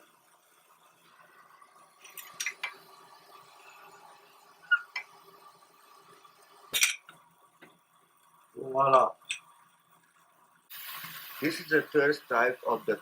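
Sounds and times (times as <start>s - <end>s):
glass tubing clicking: 2.0s - 2.9s, 4.6s - 5.2s, 9.2s - 9.6s.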